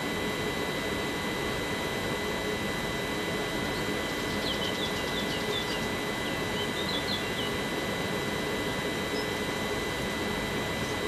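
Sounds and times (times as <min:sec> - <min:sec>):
small bird chirping: 0:04.0 - 0:07.5.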